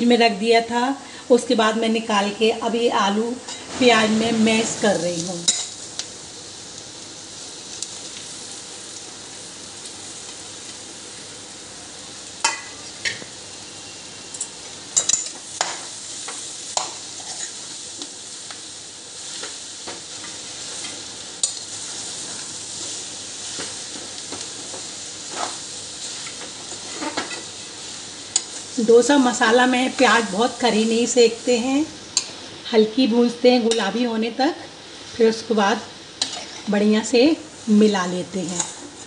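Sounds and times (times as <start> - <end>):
food sizzling in a pan: 0.0 - 39.0
metal spoon scraping a pan: 25.3 - 27.5, 36.2 - 36.8, 38.5 - 39.0.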